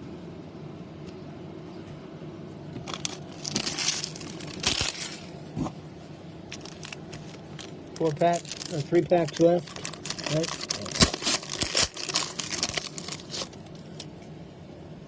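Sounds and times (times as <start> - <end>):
foil wrapper crinkling: 2.8 - 5.4, 6.5 - 14.1.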